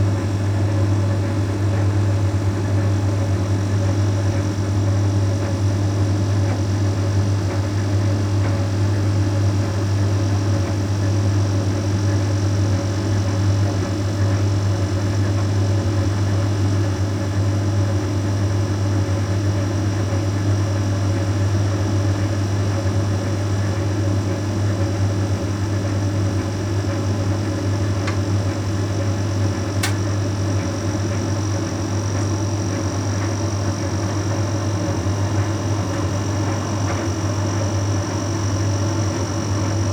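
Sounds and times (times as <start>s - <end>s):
tumble dryer hum: 15.3s - 39.9s.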